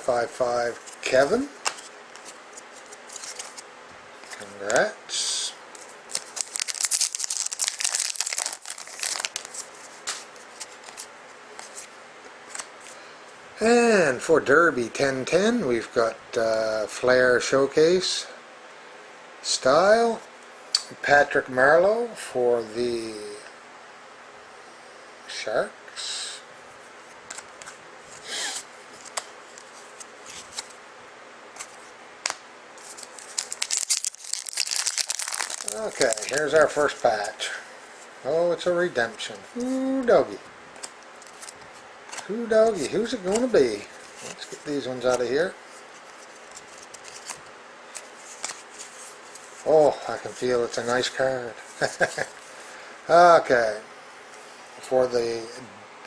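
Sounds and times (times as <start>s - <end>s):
card pack wrapper crinkling: 0.8s - 3.6s, 5.8s - 11.1s, 31.6s - 37.4s, 40.8s - 45.1s, 46.0s - 51.2s.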